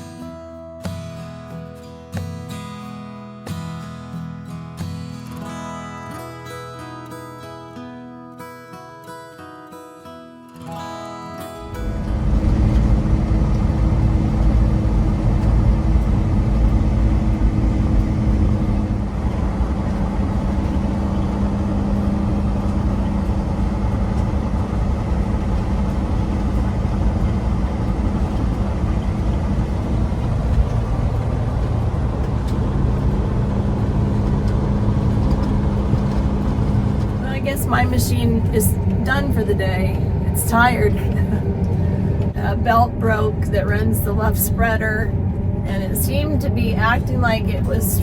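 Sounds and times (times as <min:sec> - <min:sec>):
combine harvester engine drone: 0:11.2 - 0:48.0.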